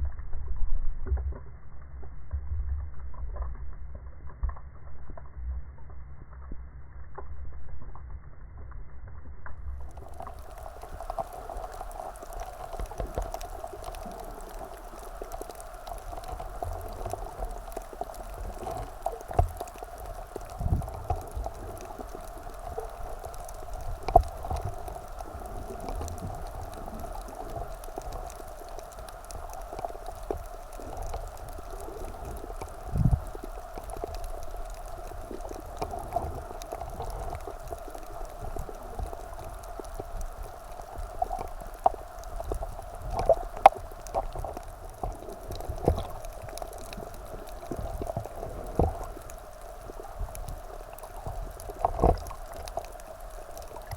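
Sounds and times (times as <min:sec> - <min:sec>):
water sloshing and gurgling: 0:09.8 - 0:53.9.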